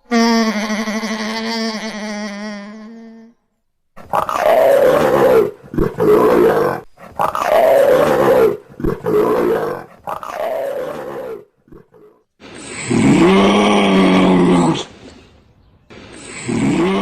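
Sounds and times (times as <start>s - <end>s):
animal roaring: 4.0s - 15.2s, 16.1s - 17.0s.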